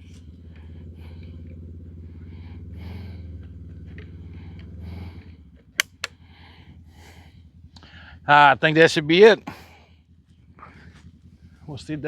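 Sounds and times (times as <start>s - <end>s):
engine idling: 0.0s - 8.9s, 9.6s - 12.0s
sharp clicks: 5.8s - 6.1s.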